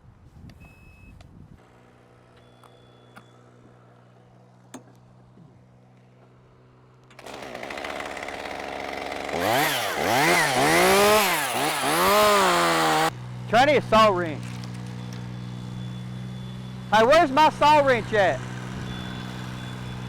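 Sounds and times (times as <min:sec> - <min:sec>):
faint engine hum: 0:00.1 - 0:07.2, 0:12.8 - 0:20.0
chainsaw revving: 0:07.2 - 0:13.2, 0:16.8 - 0:20.0.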